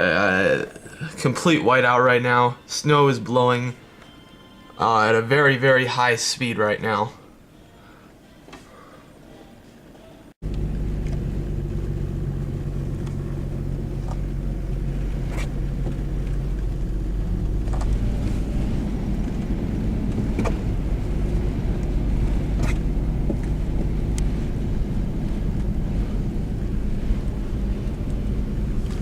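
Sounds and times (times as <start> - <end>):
car engine and road rumble: 10.4 - 29.0.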